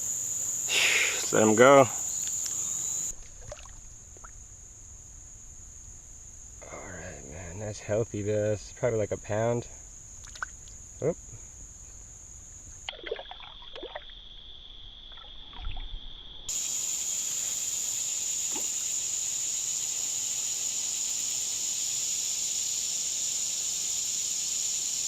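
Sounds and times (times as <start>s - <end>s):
insects chorus: 0.0s - 25.0s.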